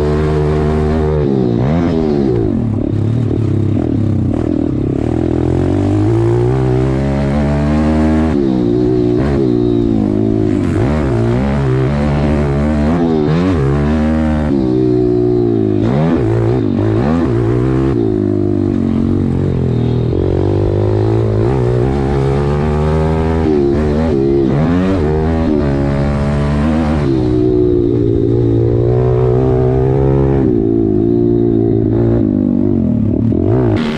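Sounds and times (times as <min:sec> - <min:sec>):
motorbike engine revving: 0:00.0 - 0:33.9.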